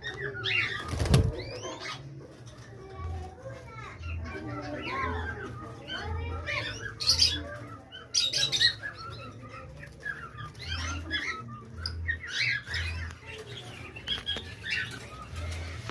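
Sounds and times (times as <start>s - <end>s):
small birds chirping: 0.0s - 15.9s.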